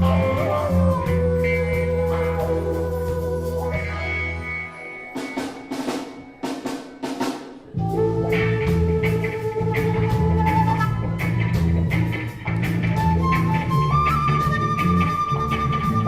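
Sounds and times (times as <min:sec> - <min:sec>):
reggae band music: 0:00.0 - 0:16.0.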